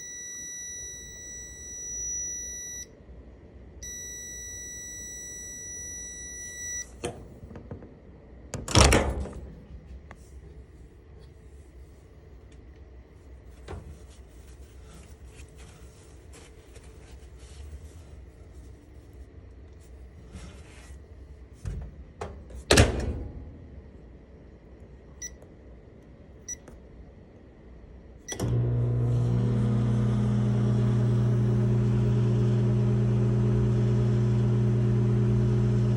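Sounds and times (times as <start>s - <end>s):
microwave oven humming: 0.0s - 9.6s, 28.2s - 35.9s
microwave door shutting: 8.6s - 9.4s, 21.7s - 23.5s.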